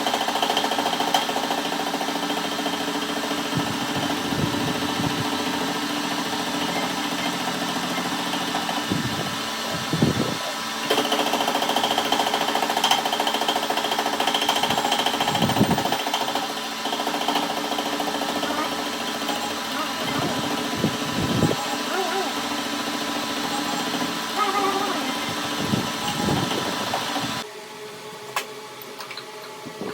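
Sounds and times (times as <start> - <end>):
rough rhythmic working sound: 0.0 - 27.4
machine humming: 17.0 - 27.5.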